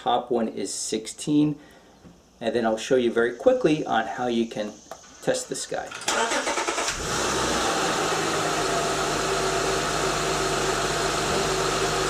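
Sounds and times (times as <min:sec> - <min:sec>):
engine hiss: 0:04.7 - 0:12.0
car engine cranking and idling: 0:06.0 - 0:12.0.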